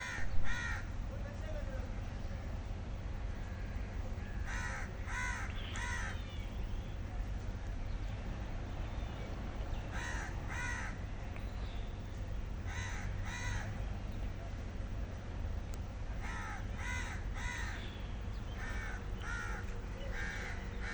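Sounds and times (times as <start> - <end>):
steady low rumble: 0.0 - 20.9
bird calling: 3.4 - 7.0, 8.9 - 14.2, 16.2 - 20.9.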